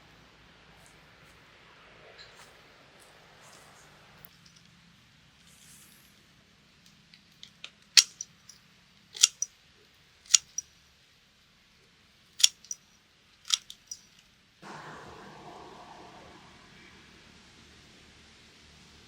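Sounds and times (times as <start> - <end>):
sharp clicks: 8.0 - 8.5, 9.2 - 9.5, 10.3 - 10.6, 12.4 - 12.8, 13.5 - 14.2
rustling: 8.0 - 8.6, 9.2 - 9.5, 10.3 - 10.6, 12.4 - 12.9, 13.5 - 14.2.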